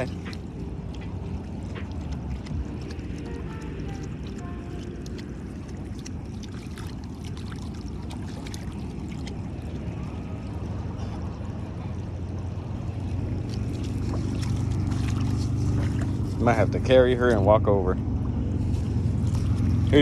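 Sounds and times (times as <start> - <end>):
shallow water splashing and trickling: 0.0 - 20.0
small splashes: 0.0 - 20.0
wind rumble on microphone: 0.0 - 20.0.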